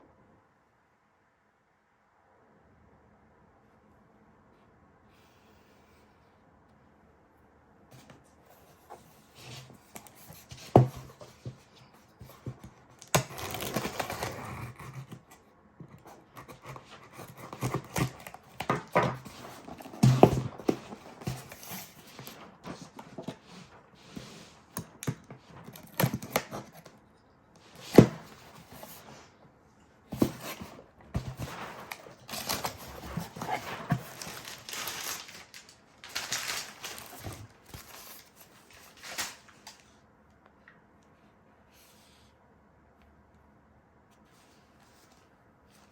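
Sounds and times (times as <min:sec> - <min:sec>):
packaging rustling and crinkling: 0:08.5 - 0:15.4, 0:16.0 - 0:26.9, 0:27.6 - 0:29.3, 0:30.1 - 0:40.0
items tapping and knocking: 0:15.8 - 0:23.6, 0:30.1 - 0:35.2.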